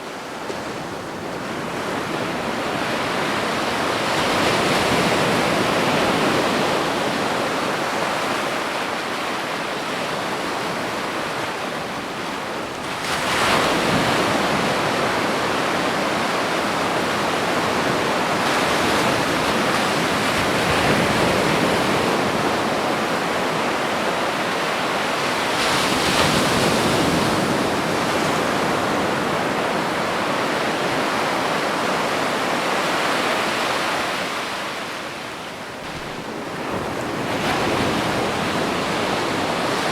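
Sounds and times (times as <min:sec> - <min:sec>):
ocean waves breaking: 0:12.9 - 0:39.9.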